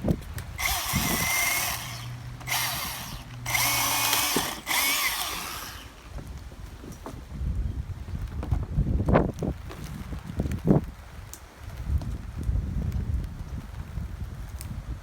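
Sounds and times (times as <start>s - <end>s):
chainsaw cutting branches: 0.0s - 6.4s.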